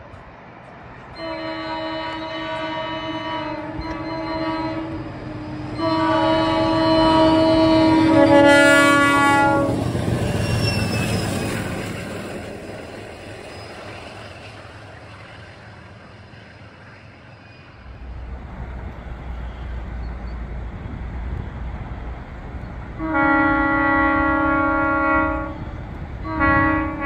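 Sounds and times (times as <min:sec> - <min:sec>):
rumble of passing train: 0:00.0 - 0:27.0
locomotive horn: 0:01.2 - 0:09.8, 0:23.0 - 0:27.0.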